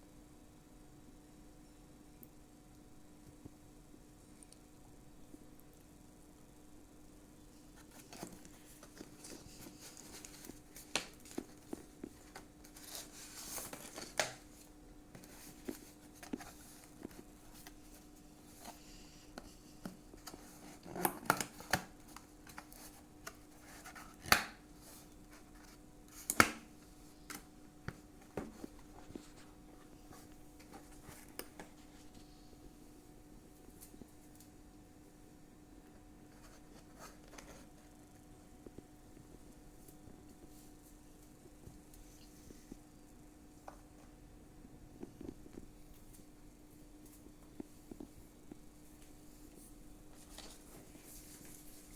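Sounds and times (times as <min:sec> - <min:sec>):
packaging rustling: 0:07.8 - 0:18.8.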